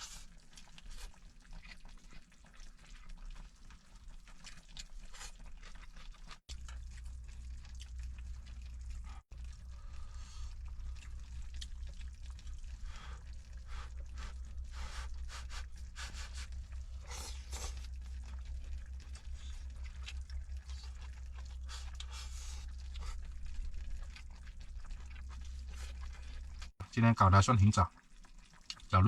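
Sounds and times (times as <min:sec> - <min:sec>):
steady low rumble: 0:06.5 - 0:26.7.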